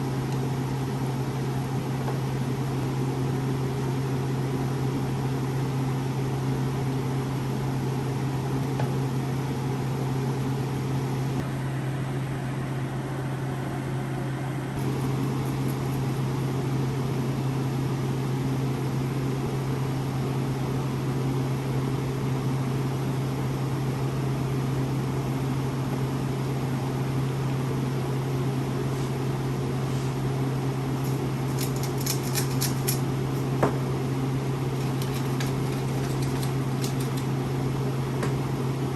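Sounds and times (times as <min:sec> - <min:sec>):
motor humming: 0:30.9 - 0:38.9.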